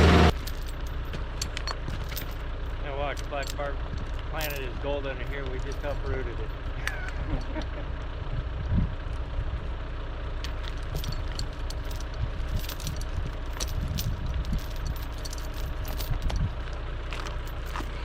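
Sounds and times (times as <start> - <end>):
diesel engine running: 0.0 - 18.0
metallic clicks and rattles: 0.3 - 7.7, 10.4 - 16.7.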